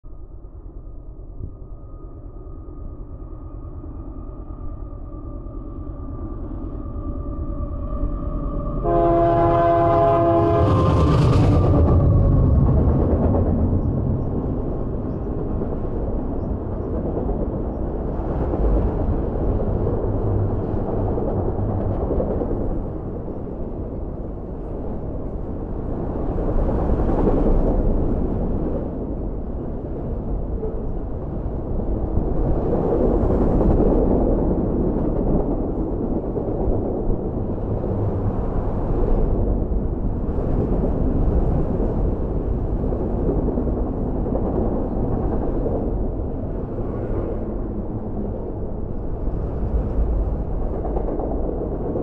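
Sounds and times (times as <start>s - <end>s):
locomotive engine and wheel noise: 2.7s - 52.0s
rail cars rumbling and clattering: 3.3s - 52.0s
locomotive horn: 8.8s - 11.1s.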